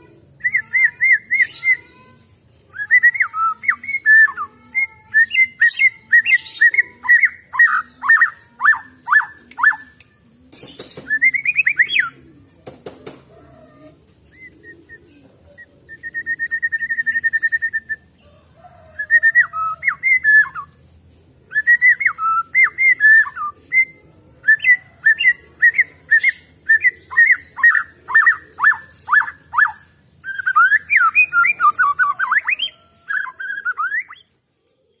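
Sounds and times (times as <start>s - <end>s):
bird singing whistled notes: 2.7s - 10.1s, 11.0s - 12.2s, 15.6s - 18.1s, 18.9s - 20.9s, 21.5s - 35.0s.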